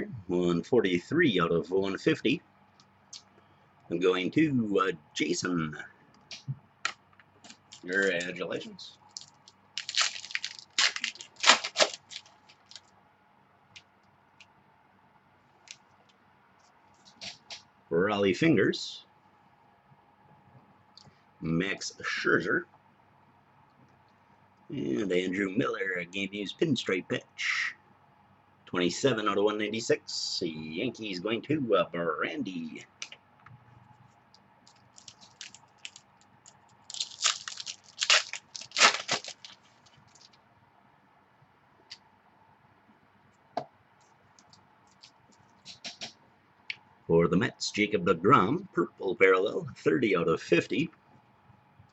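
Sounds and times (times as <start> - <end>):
plastic sleeves crinkling: 7.4 - 13.0, 34.0 - 40.4, 44.0 - 46.1
plastic packaging crackling: 7.5 - 8.4, 9.0 - 12.9, 34.6 - 40.4.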